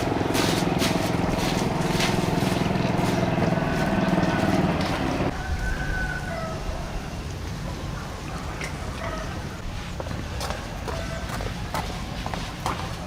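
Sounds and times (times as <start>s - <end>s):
small engine running: 0.0s - 5.3s.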